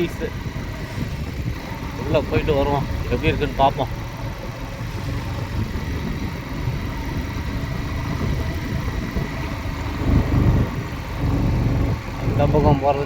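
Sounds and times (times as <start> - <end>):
motorcycle engine low rumble: 0.0 - 13.0.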